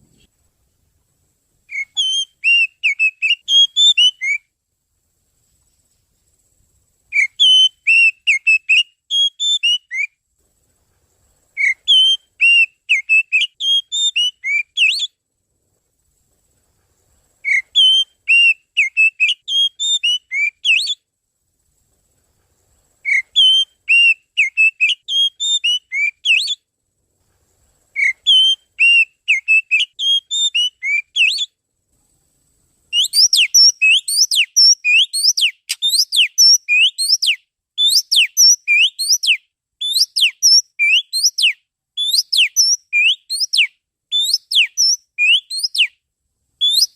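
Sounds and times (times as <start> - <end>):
bird song whistled notes: 1.6 - 4.5, 7.1 - 10.2, 11.5 - 15.2, 17.4 - 21.1, 23.0 - 26.7, 27.9 - 31.6, 32.9 - 46.0, 46.6 - 46.9.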